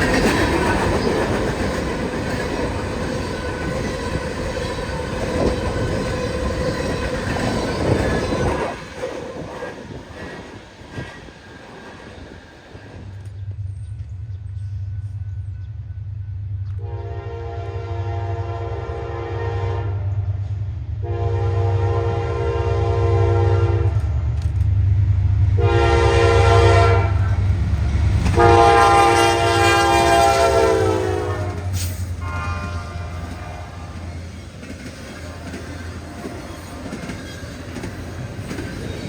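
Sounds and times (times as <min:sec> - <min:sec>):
train rumbling: 0:00.0 - 0:39.0
train horn blasts: 0:16.7 - 0:20.4, 0:21.0 - 0:24.1, 0:25.6 - 0:27.4, 0:28.3 - 0:34.2.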